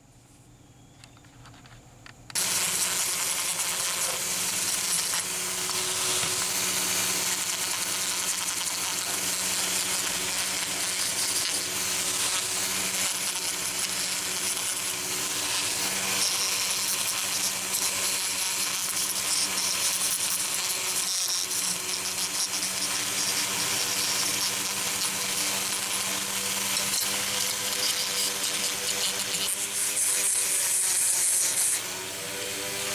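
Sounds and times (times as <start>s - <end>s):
power tool grinding metal: 2.3s - 32.9s.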